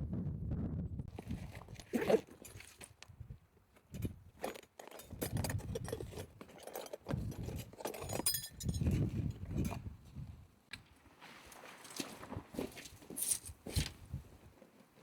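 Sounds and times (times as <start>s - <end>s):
light metallic clinks: 4.0s - 9.0s.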